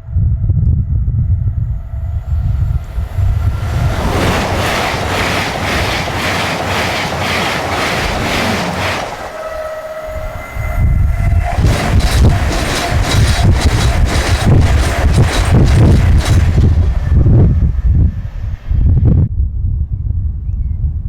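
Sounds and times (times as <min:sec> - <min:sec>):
train wheels clattering over rails: 0:02.0 - 0:09.8, 0:11.2 - 0:18.6.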